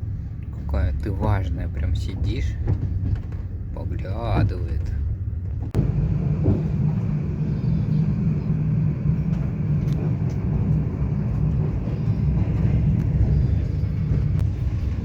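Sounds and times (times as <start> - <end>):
train carriage rumbling on rails: 0.0 - 15.0
faint clicks of rails: 9.2 - 15.0.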